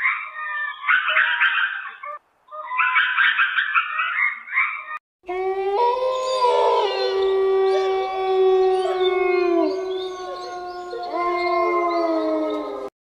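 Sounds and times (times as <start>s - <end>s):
wolf howling: 5.3s - 12.9s.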